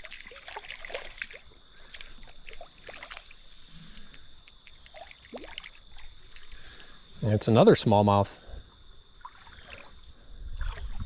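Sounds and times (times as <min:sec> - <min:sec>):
water trickling in creek: 0:00.0 - 0:07.1, 0:08.6 - 0:11.0
high-pitched insect drone: 0:00.0 - 0:11.0.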